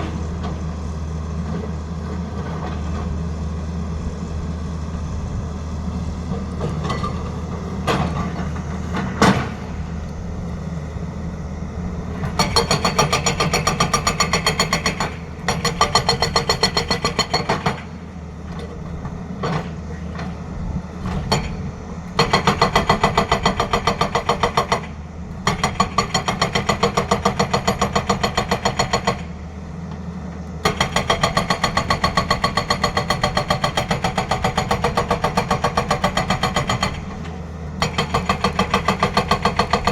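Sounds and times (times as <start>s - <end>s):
excavator engine running: 0.0s - 39.9s
hydraulic breaker hammering: 12.2s - 17.9s, 22.2s - 29.3s, 30.6s - 39.9s.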